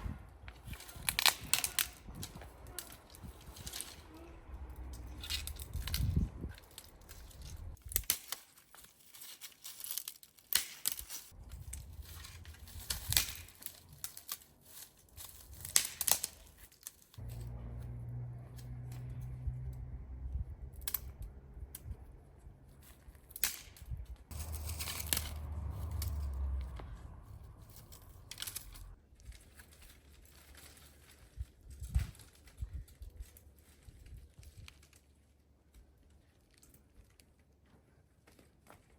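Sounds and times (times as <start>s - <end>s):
crackling and crinkling: 0.0s - 38.9s
low hum: 17.2s - 23.2s, 24.3s - 29.0s.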